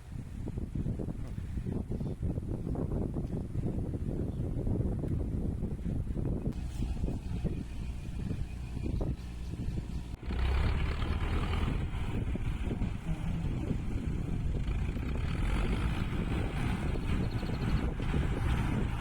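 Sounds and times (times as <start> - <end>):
tractor engine rumbling: 4.7 - 19.0.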